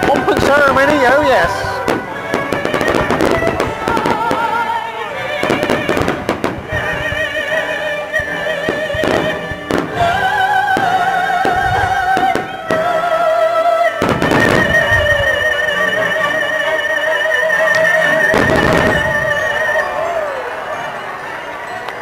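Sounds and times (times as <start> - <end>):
fireworks bangs: 0.0 - 22.0
orchestral music: 0.0 - 22.0
person singing long notes: 0.0 - 22.0.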